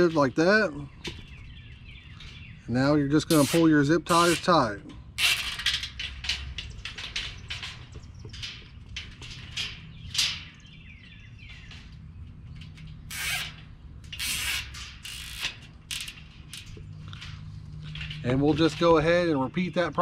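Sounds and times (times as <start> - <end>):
zip ties ratcheting tight: 13.1 - 13.6, 14.2 - 16.1.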